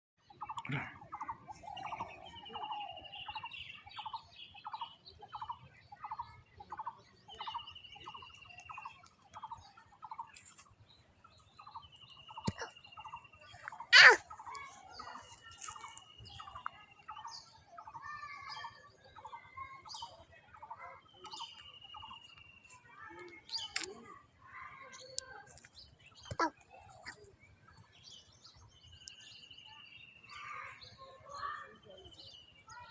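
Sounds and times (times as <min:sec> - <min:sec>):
bird short repeated call: 0:13.9 - 0:14.6.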